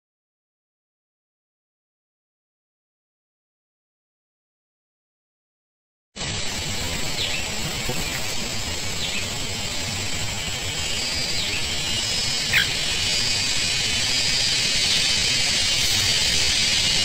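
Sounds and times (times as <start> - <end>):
steady high hiss: 6.2 - 17.0
short bird chirps: 11.0 - 13.0.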